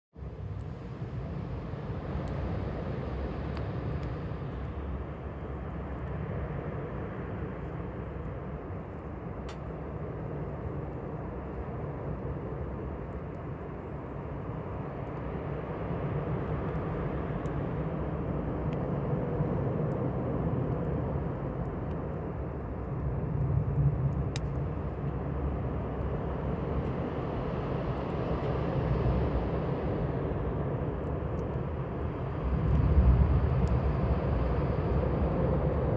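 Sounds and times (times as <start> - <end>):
steady low rumble: 0.2 - 35.9
faint small ticks: 23.0 - 25.1, 32.4 - 34.0
campfire crackling pops: 23.0 - 25.2.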